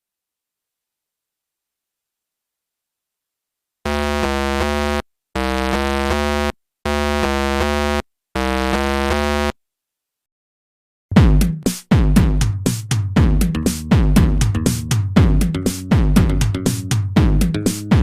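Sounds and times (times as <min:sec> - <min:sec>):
electronic keyboard chords: 0:03.9 - 0:09.5, 0:13.2 - 0:18.0.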